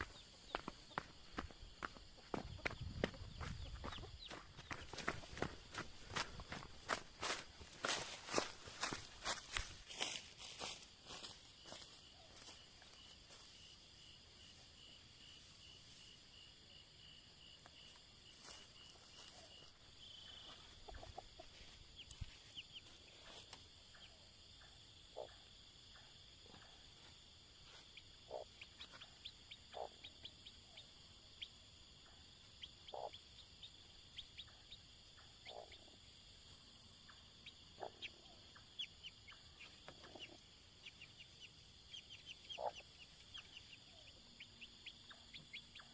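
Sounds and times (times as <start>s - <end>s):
insects chirring: 0.0s - 45.9s.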